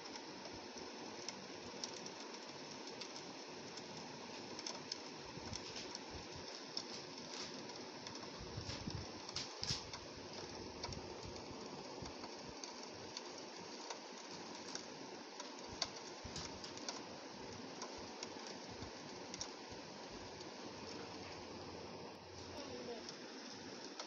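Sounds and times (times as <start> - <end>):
raindrops ticking on window glass: 0.0 - 21.7, 22.5 - 24.0
steady hiss of rainfall: 0.0 - 24.0.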